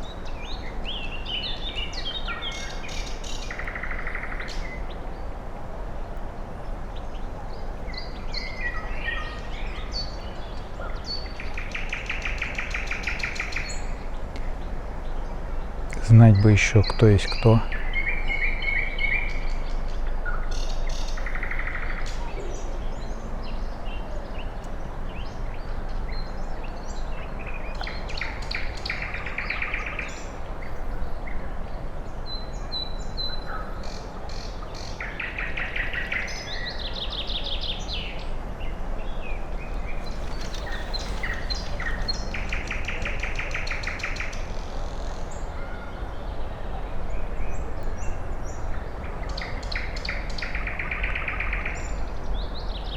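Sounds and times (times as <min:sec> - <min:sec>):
steady rushing background noise: 0:38.2 - 0:45.4
bird trilling: 0:39.6 - 0:43.1
birds chirping and whistling: 0:39.6 - 0:44.4.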